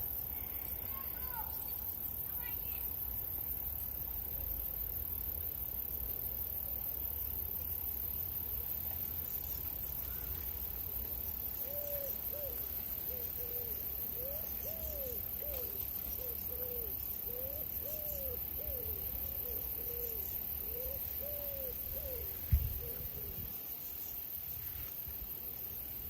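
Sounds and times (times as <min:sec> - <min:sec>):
bird hooting: 0:11.6 - 0:23.4.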